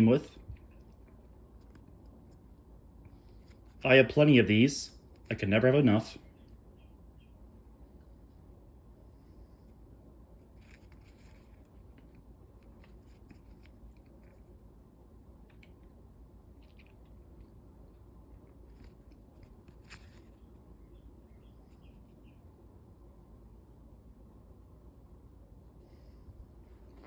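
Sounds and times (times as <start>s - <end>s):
low steady hum: 0.0s - 27.0s
paper crinkling and scraping: 10.4s - 14.4s, 18.7s - 20.6s.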